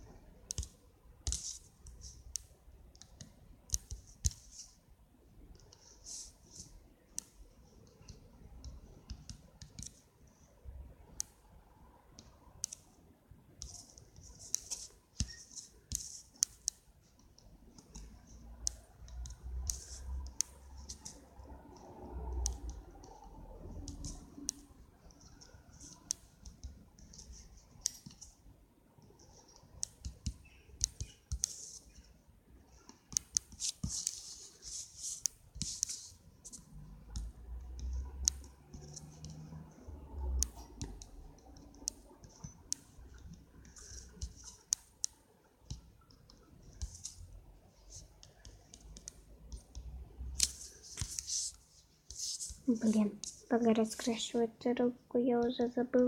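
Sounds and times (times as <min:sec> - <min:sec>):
light taps and clicks: 0:13.6 - 0:28.4, 0:32.7 - 0:47.3
scratchy rubbing strokes: 0:18.0 - 0:21.4, 0:29.2 - 0:32.2, 0:32.8 - 0:39.6, 0:46.6 - 0:53.6.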